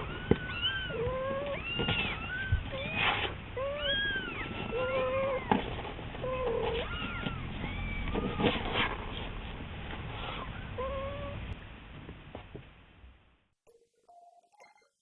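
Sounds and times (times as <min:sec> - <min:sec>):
kitten meowing: 0:00.0 - 0:05.6, 0:06.2 - 0:08.5.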